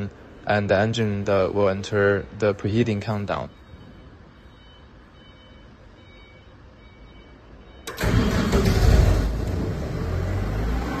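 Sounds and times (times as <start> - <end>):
faint short beeps: 3.4 - 8.0
diesel engine cranking and running: 7.8 - 11.0.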